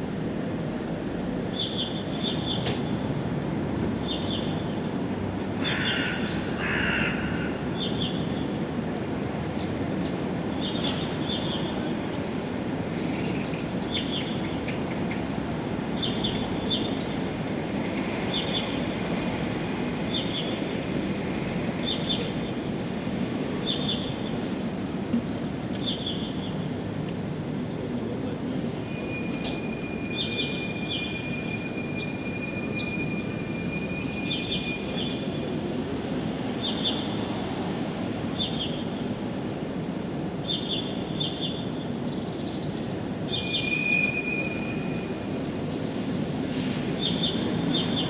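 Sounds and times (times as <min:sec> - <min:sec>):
songbird high chirps: 0:01.3 - 0:02.8, 0:03.8 - 0:04.8, 0:09.6 - 0:11.9, 0:15.8 - 0:17.2, 0:25.6 - 0:26.6, 0:28.9 - 0:35.4, 0:36.4 - 0:37.1, 0:40.2 - 0:45.1, 0:46.7 - 0:48.0.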